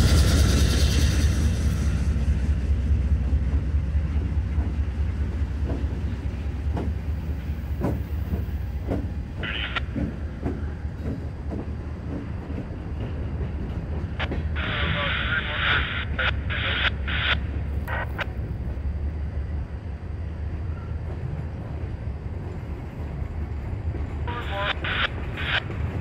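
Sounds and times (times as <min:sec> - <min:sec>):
locomotive engine rumble: 0:00.0 - 0:26.0.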